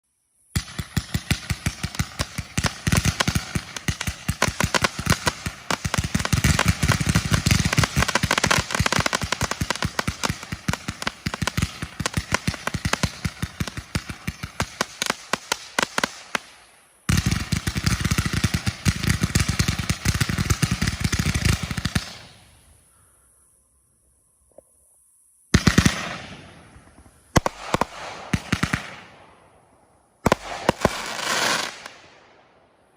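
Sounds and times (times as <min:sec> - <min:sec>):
firework cracking reports: 0:00.6 - 0:22.7, 0:30.2 - 0:32.3.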